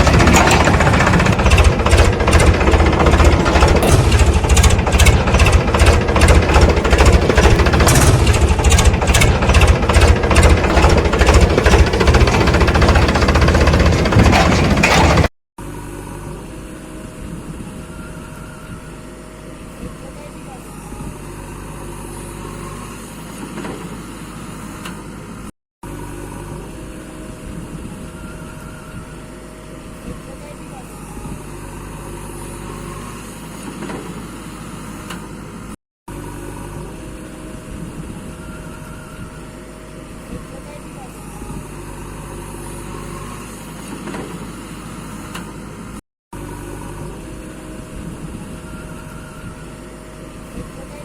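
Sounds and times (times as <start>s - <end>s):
heavy machinery engine idling: 0.0s - 15.3s.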